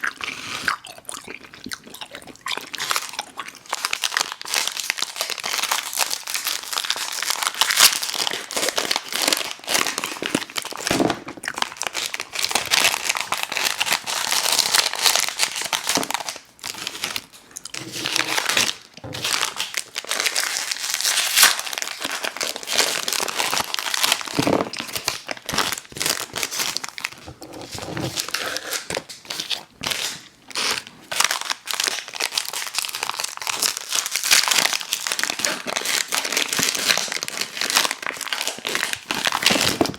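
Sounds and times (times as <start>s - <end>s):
candy wrappers crinkling: 2.8s - 39.9s.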